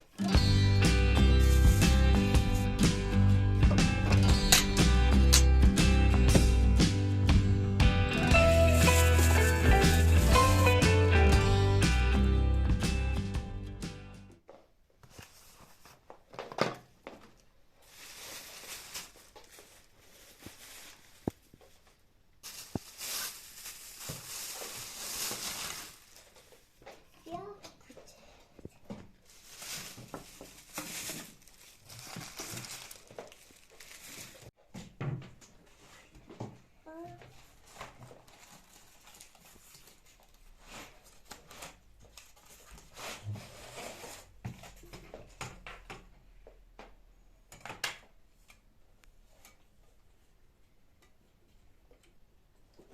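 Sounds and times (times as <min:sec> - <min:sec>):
plastic and paper rustling: 0:08.2 - 0:10.8, 0:15.0 - 0:26.7, 0:28.7 - 0:34.6, 0:37.2 - 0:44.9.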